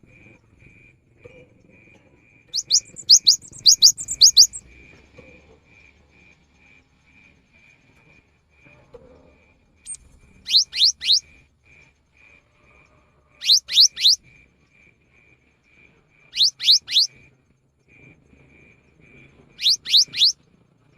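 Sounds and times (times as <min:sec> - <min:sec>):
bird whistling song: 0:02.4 - 0:04.6, 0:09.8 - 0:11.4, 0:13.4 - 0:14.2, 0:16.3 - 0:17.2, 0:19.6 - 0:20.4.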